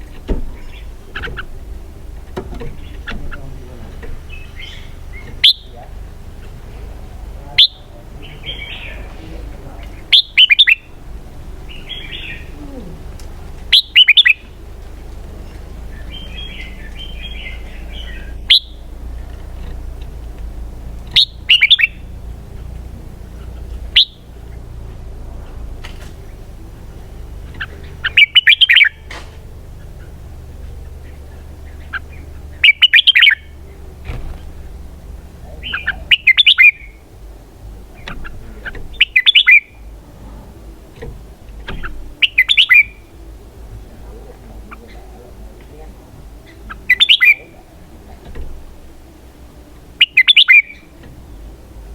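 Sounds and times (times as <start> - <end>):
bulbul singing: 0.0 - 51.9
soft bird chirping: 0.0 - 51.9.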